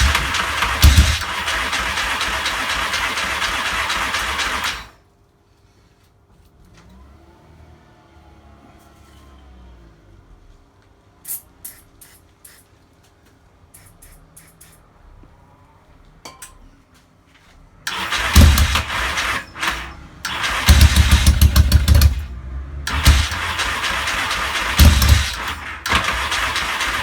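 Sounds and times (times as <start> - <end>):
motorcycle electric starter cranking: 0.0 - 5.0, 17.9 - 27.0
motorcycle engine firing unevenly: 0.0 - 5.0, 17.9 - 27.0.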